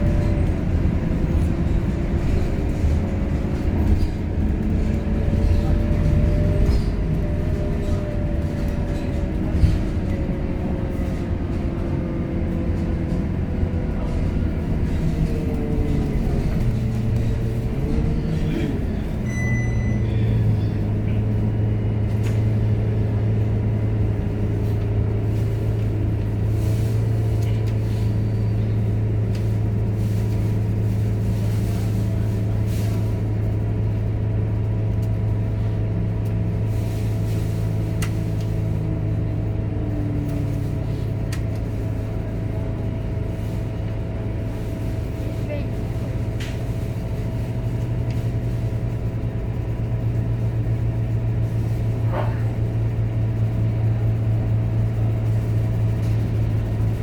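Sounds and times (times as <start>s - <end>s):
bus engine droning: 0.0s - 57.0s
high beep: 19.2s - 20.2s.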